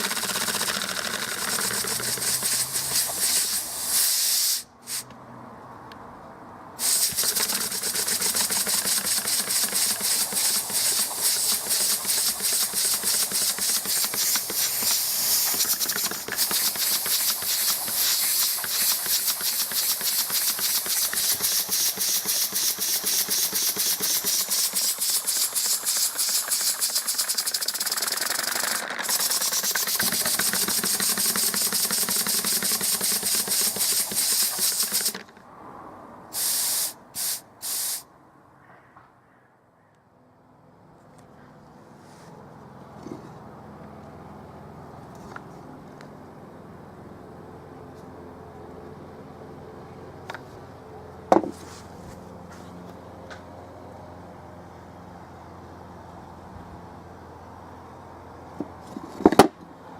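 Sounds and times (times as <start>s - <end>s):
air engine chuffing: 0.0s - 4.0s, 6.8s - 35.3s
air hissing: 0.0s - 5.1s, 6.8s - 35.2s, 36.3s - 38.1s.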